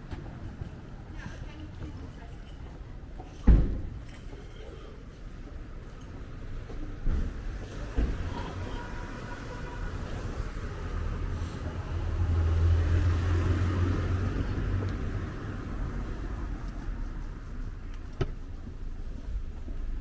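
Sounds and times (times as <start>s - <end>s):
car passing by: 7.1s - 17.4s.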